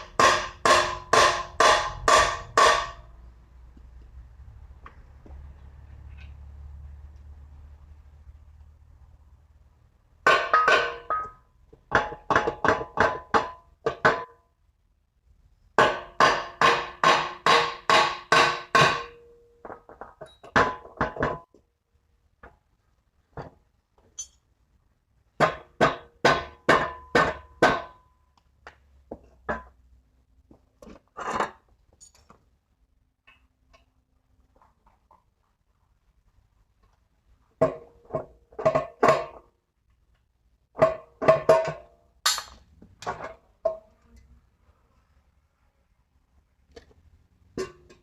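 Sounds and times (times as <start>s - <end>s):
ringing strikes on metal: 0.0s - 3.1s.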